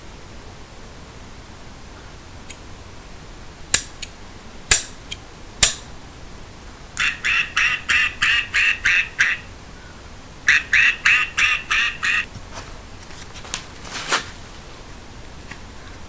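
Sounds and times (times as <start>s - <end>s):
sharp clicks: 3.7s - 5.9s
duck quacking: 7.0s - 9.6s, 10.5s - 12.3s.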